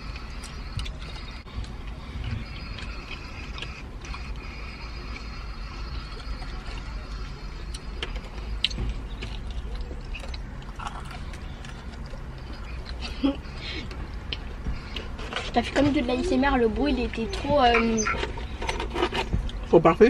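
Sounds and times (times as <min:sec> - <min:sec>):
crunching fried chicken: 0:02.5 - 0:13.2.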